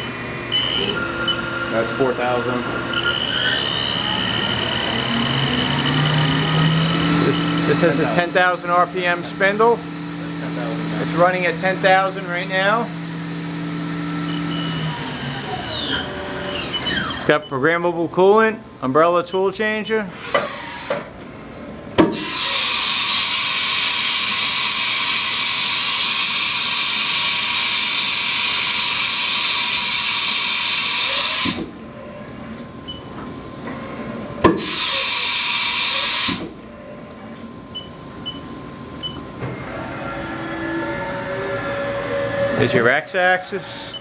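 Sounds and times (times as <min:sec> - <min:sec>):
coolant spraying hiss: 0:06.9 - 0:12.8, 0:22.2 - 0:31.6, 0:34.6 - 0:36.5.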